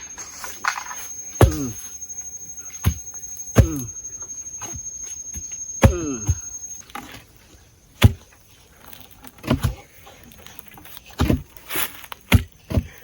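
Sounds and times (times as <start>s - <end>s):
high insect trill: 0.0s - 9.0s
heavy knocks pounding wood: 0.8s - 2.0s, 2.7s - 4.0s, 4.6s - 6.5s.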